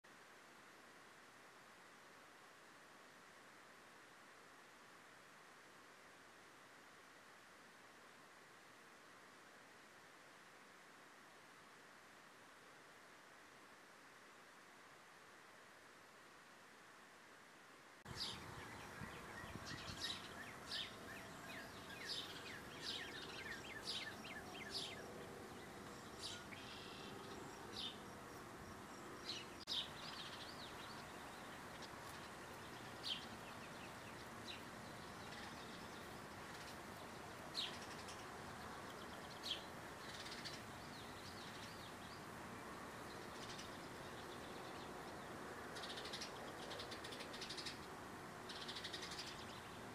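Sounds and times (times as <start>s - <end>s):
steady outdoor hiss: 0.0s - 49.9s
birds chirping: 18.1s - 49.9s.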